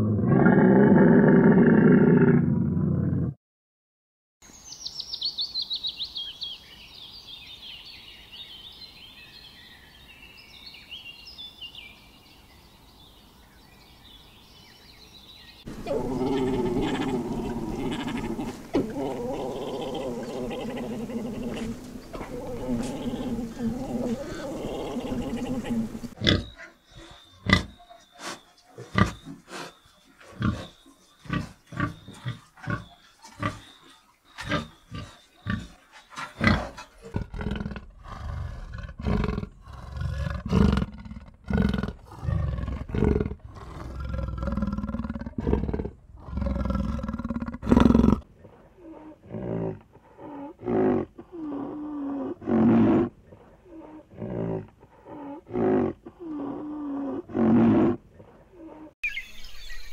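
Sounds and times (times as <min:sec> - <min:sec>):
big cat roaring and grunting: 0:00.0 - 0:03.4, 0:15.7 - 0:26.5, 0:36.4 - 0:59.0
dense animal noise: 0:15.6 - 0:59.0.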